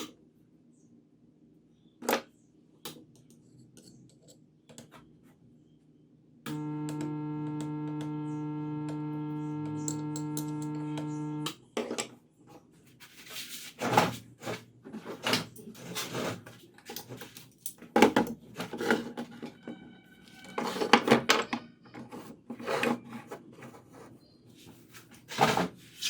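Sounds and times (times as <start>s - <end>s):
high steady tone: 6.5s - 11.5s.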